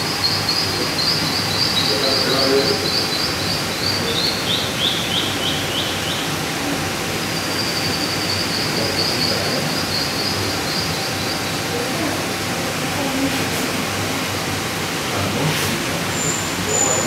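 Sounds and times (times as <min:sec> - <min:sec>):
small bird chirping: 0:00.2 - 0:06.3, 0:07.4 - 0:11.6.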